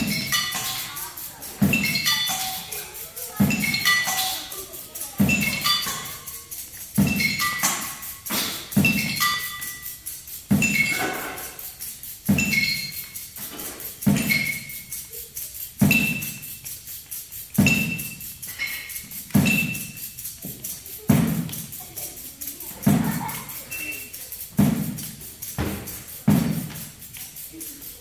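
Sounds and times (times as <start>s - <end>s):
percussion ensemble playing: 0.0s - 28.0s.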